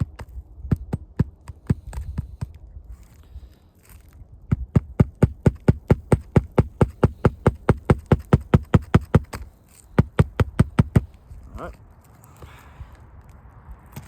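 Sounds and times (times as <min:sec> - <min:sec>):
hammer striking roofing nails: 0:00.0 - 0:02.6, 0:04.5 - 0:11.2.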